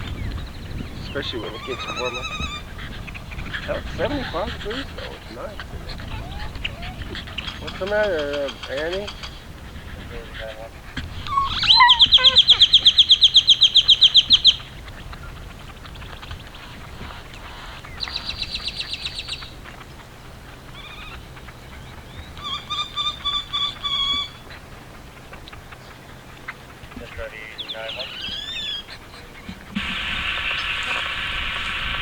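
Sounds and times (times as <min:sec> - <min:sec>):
bird trilling: 0:00.0 - 0:32.0
bird repeated clear notes: 0:11.1 - 0:14.7, 0:25.5 - 0:28.9.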